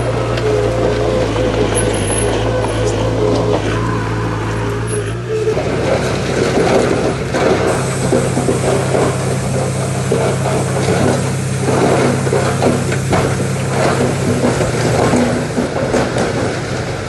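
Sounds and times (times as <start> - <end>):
diesel machinery engine running: 0.0 - 17.0
dense clattering and rattling: 5.5 - 17.0.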